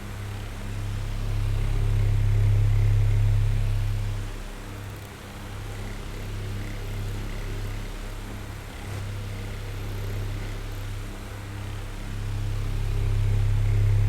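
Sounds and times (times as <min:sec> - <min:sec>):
electric fan running: 0:09.3 - 0:14.0.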